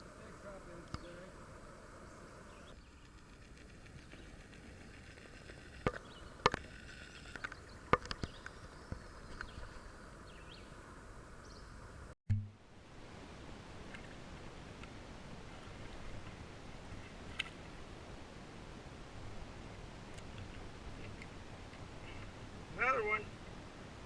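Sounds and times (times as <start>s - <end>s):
faint outdoor ambience: 0.0s - 24.0s
low thump: 12.3s - 12.6s.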